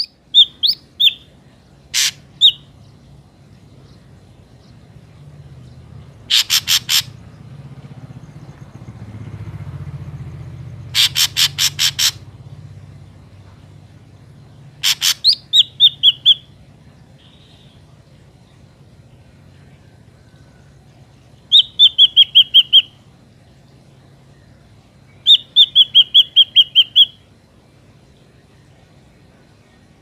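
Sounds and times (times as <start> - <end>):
harsh scratchy bird calls: 0.0 - 1.3, 1.9 - 2.8, 6.2 - 7.4, 10.9 - 12.3, 14.8 - 16.5, 21.5 - 23.0, 25.2 - 27.2.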